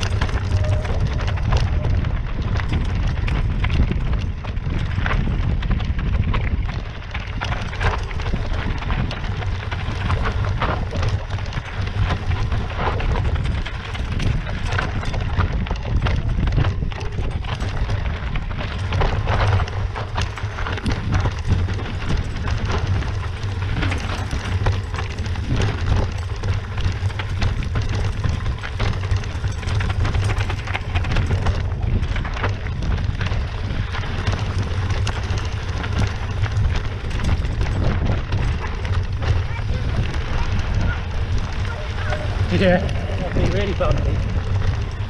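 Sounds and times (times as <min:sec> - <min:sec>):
bike rattling: 0:00.0 - 0:45.0
steady low rumble: 0:00.0 - 0:45.0
tyres crunching on stones: 0:00.0 - 0:45.0.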